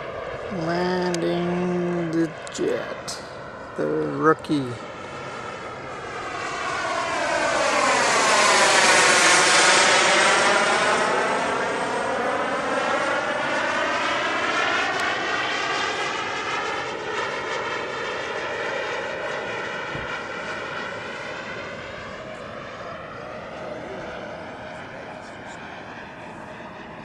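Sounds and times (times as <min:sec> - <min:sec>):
jet engine whine: 0:00.0 - 0:27.0.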